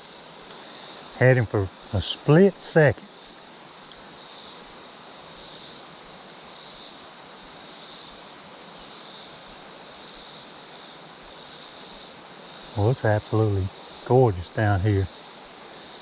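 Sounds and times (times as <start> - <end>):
high-pitched insects chorus: 0.0 - 16.0
creek water running: 0.4 - 3.1, 12.7 - 15.1.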